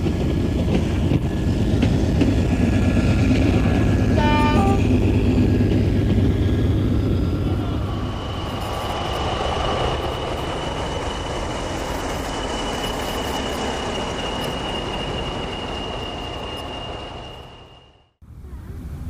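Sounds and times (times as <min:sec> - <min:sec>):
train rumbling past: 0:00.0 - 0:19.0
high-pitched whine: 0:06.9 - 0:18.1.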